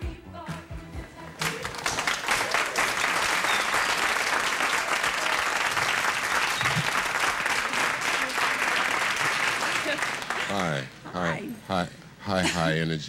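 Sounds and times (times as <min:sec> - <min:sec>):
audience applauding and cheering: 0:01.4 - 0:11.0.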